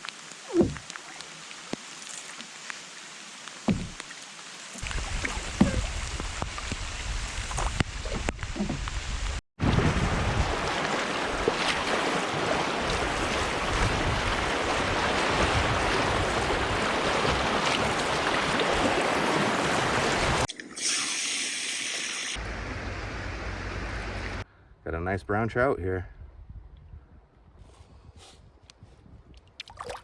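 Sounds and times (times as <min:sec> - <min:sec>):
river water rushing: 0:10.1 - 0:20.5.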